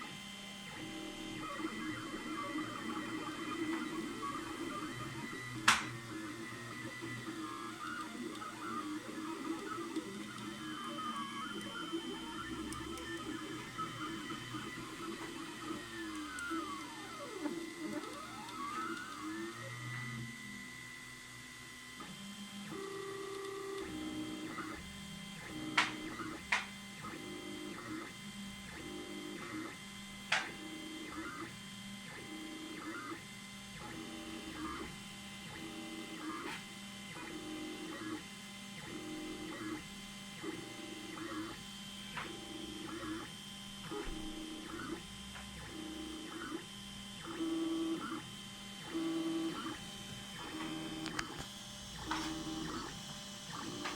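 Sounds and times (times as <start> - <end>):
stepper motors whining: 0.7 - 20.6.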